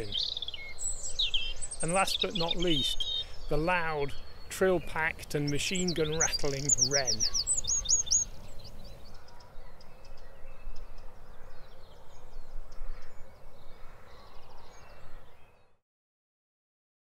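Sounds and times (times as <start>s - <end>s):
low outdoor hiss: 0.0s - 9.2s
bird chirps and calls: 0.0s - 15.7s.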